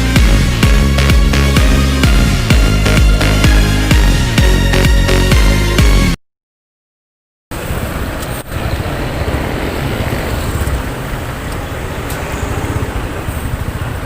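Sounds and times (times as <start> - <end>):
road and air noise: 7.5 - 14.0
motorcycle engine running: 8.6 - 14.0.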